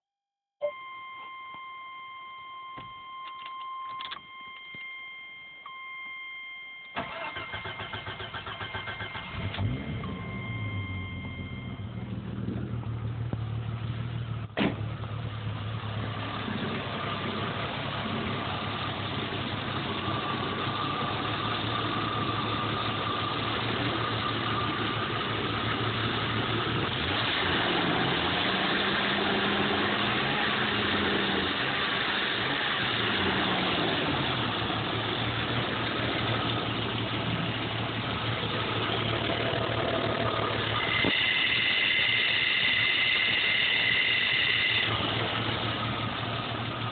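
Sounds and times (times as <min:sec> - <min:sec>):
car engine idling roughly: 0:16.6 - 0:27.0, 0:34.2 - 0:46.9.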